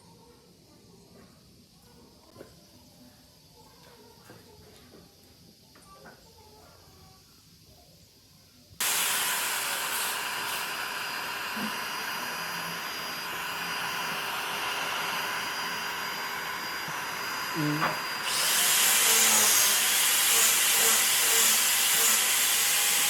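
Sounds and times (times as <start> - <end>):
power tool running: 8.8 - 23.0.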